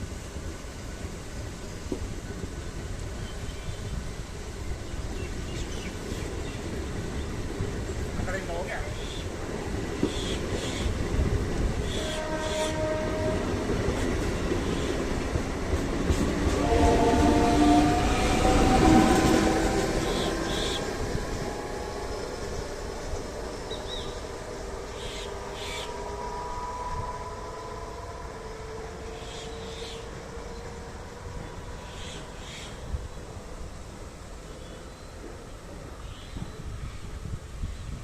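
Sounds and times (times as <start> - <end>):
electric train on track: 0.0 - 38.0
whining tones sliding in pitch: 16.5 - 31.6.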